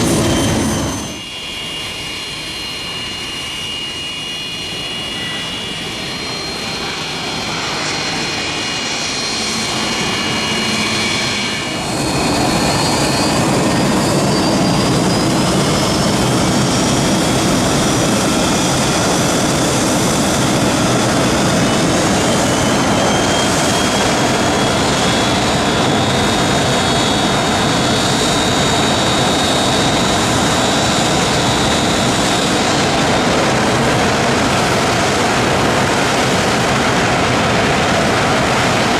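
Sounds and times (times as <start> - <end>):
loud rush of jet blast: 0.0 - 1.2
jet engine whine rising: 0.0 - 38.9.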